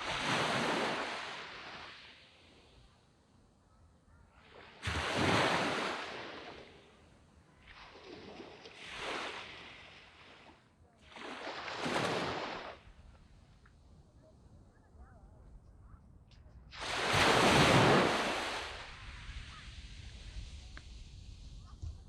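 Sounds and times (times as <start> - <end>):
small waves breaking on sand: 0.0 - 3.0, 4.4 - 13.6, 16.7 - 21.8.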